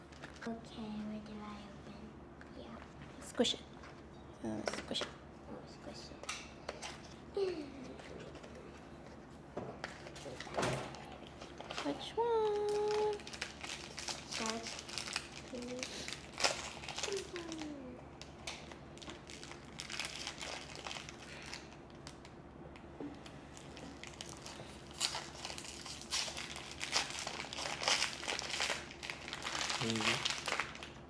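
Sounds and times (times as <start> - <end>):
packaging crinkling: 9.8 - 22.4, 23.2 - 31.0.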